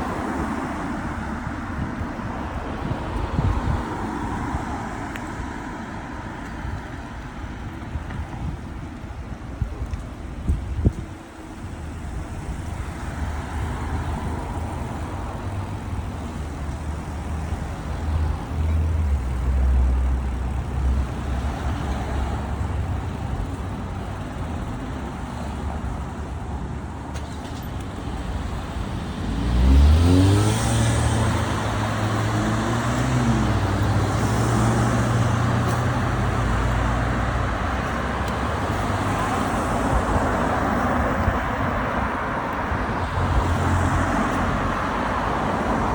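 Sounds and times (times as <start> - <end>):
road traffic rumble: 0.0 - 45.9
vehicle engine accelerating: 27.6 - 40.8.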